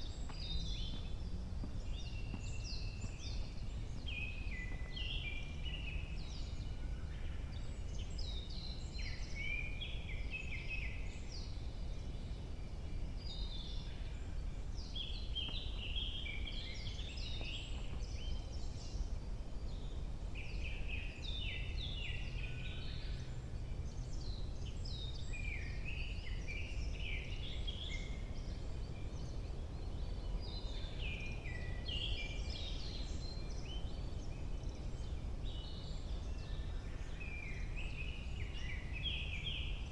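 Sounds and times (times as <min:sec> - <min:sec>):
steady low rumble: 0:00.0 - 0:06.6
songbirds singing: 0:00.0 - 0:39.9.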